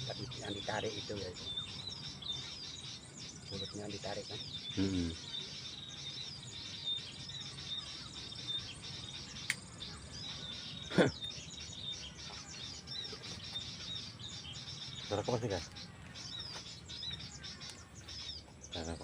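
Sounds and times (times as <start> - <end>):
small birds chirping: 0.0 - 19.0
sharp click: 9.4 - 9.6.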